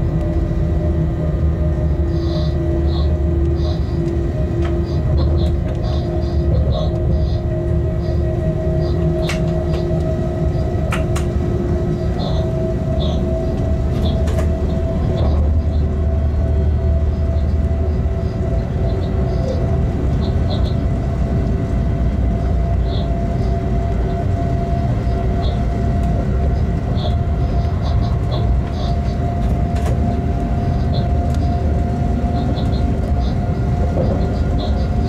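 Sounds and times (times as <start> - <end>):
steady hum: 0.0 - 35.0
train rumble: 0.0 - 35.0.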